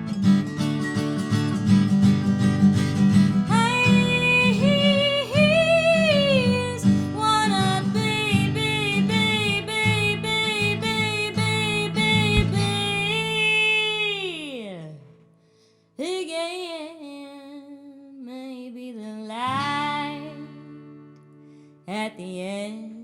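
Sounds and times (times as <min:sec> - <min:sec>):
guitar strumming: 0:00.0 - 0:13.5
woman singing: 0:03.5 - 0:15.2, 0:16.0 - 0:20.8, 0:21.9 - 0:23.0.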